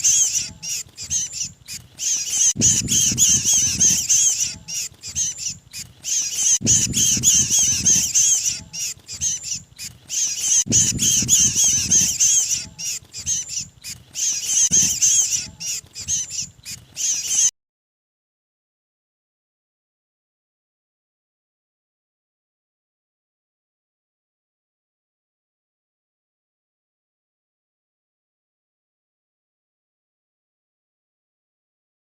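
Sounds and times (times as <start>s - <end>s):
shrill bird distress chirping: 0.0s - 17.5s.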